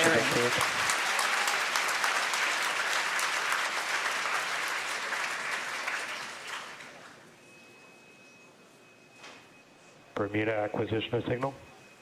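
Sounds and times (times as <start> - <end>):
crowd applauding and cheering: 0.0 - 7.3.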